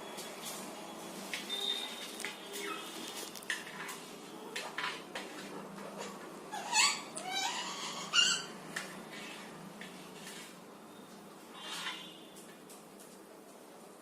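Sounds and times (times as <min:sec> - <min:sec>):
parrot squawking: 0:06.5 - 0:08.6, 0:11.5 - 0:12.2.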